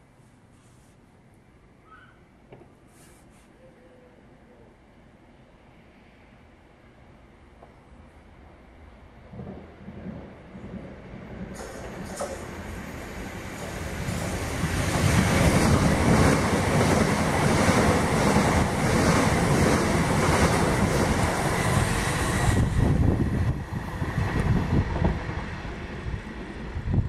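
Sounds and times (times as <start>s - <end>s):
electric train passing: 5.0s - 27.0s
wind gusts on microphone: 9.3s - 27.0s.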